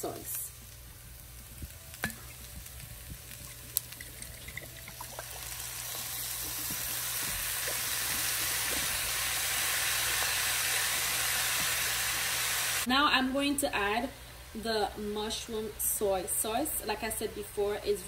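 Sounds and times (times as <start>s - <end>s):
food sizzling in skillet: 0.0s - 12.9s.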